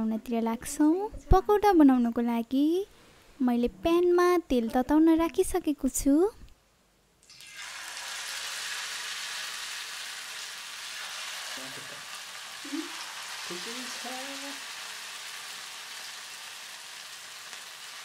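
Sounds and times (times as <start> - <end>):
food sizzling in hot oil: 7.2 - 18.0.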